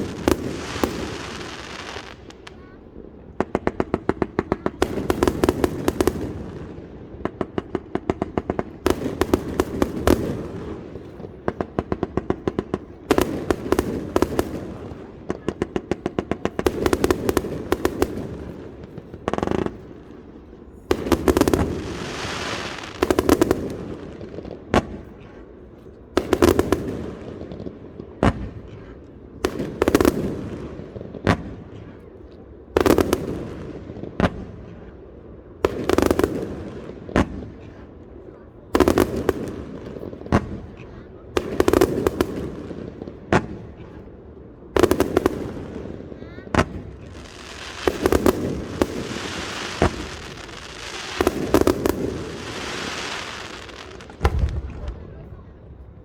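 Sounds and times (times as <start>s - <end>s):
fireworks crackling: 0.0s - 25.2s, 44.7s - 56.0s
firework bang: 46.6s - 55.2s.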